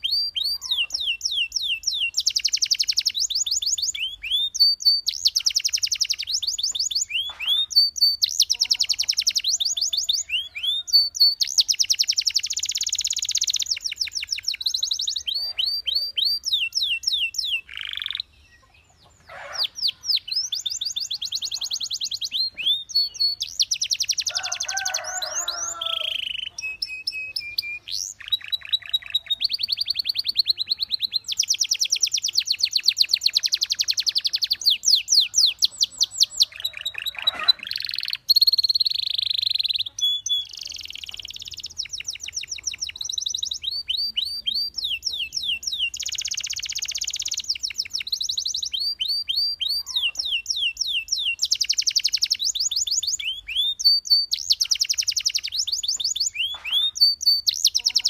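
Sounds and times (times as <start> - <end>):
canary singing: 0.0 - 58.0.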